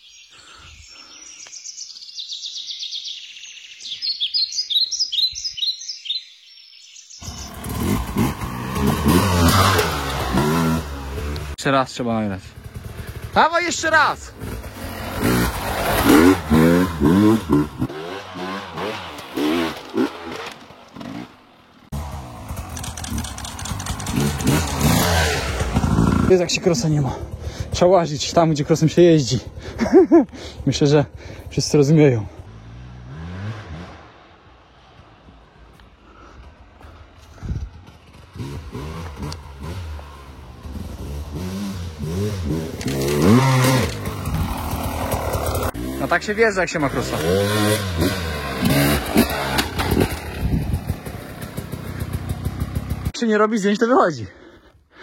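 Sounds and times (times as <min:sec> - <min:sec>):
dirt bike engine revving: 0:07.2 - 0:11.6, 0:12.5 - 0:28.6, 0:29.3 - 0:35.3, 0:36.2 - 0:53.1.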